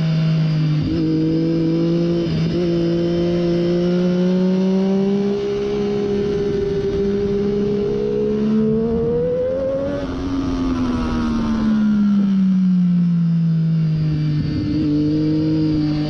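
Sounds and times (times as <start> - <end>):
motorcycle engine at speed: 0.0 - 16.0
wind noise: 4.5 - 12.4.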